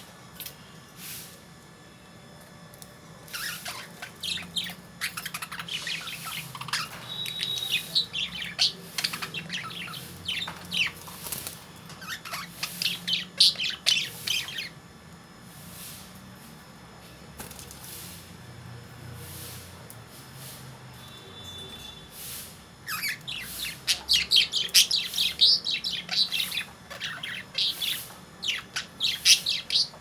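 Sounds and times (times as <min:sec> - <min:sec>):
lovebirds chirping and chattering: 0:03.2 - 0:14.9, 0:22.8 - 0:30.0.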